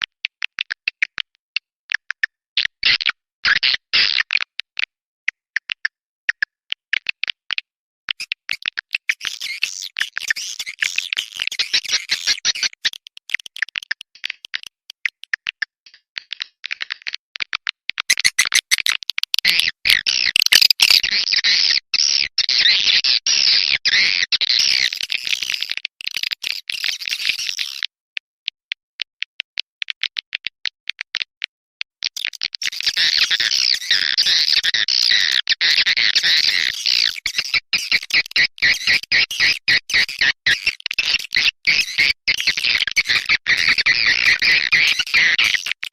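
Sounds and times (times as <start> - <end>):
swiftlet twittering chatter: 8.2 - 13.7, 18.1 - 21.1.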